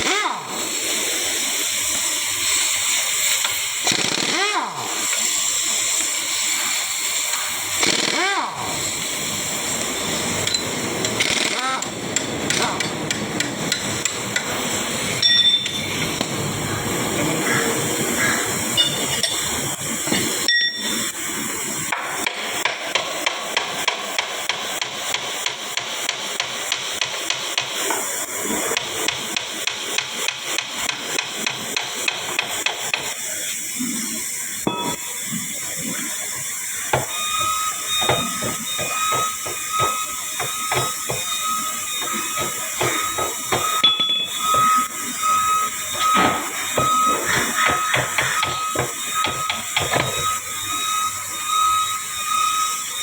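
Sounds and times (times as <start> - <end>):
steady hissing noise: 0.0 - 53.0
rising and falling whine: 4.8 - 22.0, 33.3 - 53.0
hammer striking metal parts: 15.2 - 16.3, 18.8 - 19.5, 20.1 - 21.0, 34.7 - 35.1, 36.9 - 50.4.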